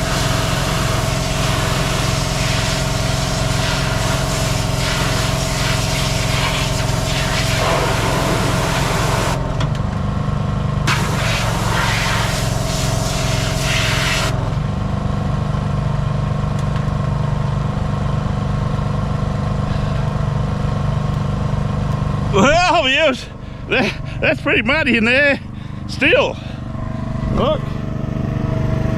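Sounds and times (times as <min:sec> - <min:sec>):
loud hiss: 0:00.0 - 0:09.4, 0:10.9 - 0:14.3
engine running steadily: 0:00.0 - 0:28.9.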